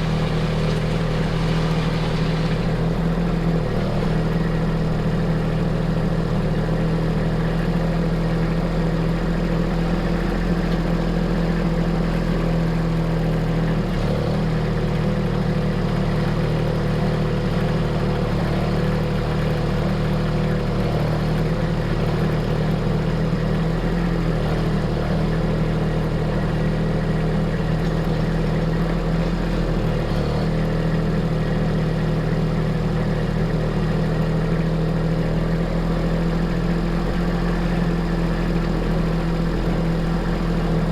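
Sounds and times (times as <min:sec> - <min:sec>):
heavy equipment engine running: 0:00.0 - 0:40.9.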